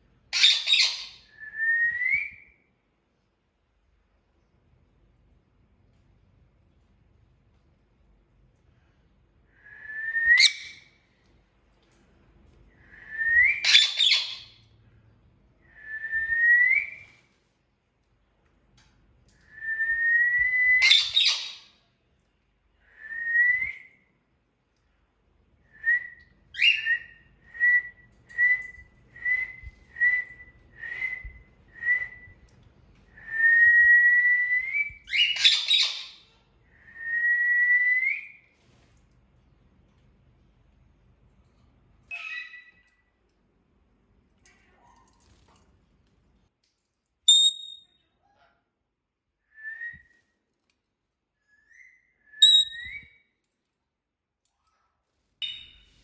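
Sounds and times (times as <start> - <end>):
parrot squawk: 0.4 - 1.1, 13.6 - 14.5
parrot whistling: 10.3 - 10.8, 20.8 - 21.6, 51.7 - 53.0.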